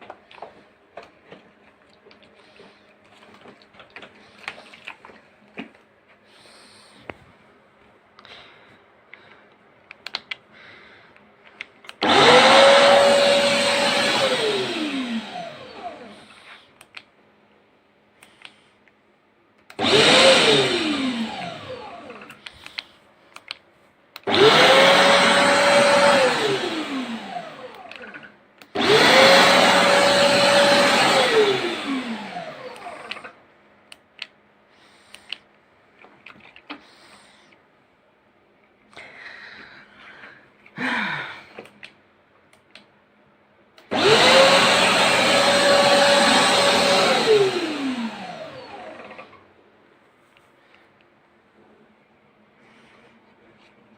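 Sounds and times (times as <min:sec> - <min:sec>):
vacuum motor whining: 0:12.0 - 0:16.2, 0:19.8 - 0:22.5, 0:24.2 - 0:33.4, 0:43.9 - 0:49.4.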